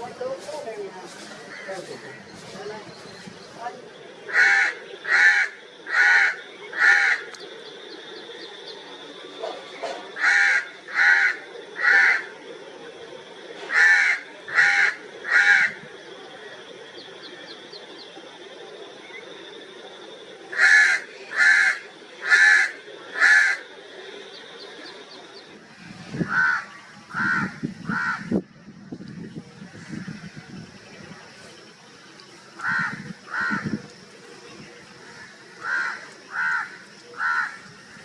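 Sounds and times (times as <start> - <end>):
crow cawing: 1.4 - 2.4, 4.3 - 7.4, 10.1 - 12.3, 13.7 - 15.8, 20.5 - 23.7, 26.3 - 28.3, 32.6 - 33.7, 35.1 - 37.6.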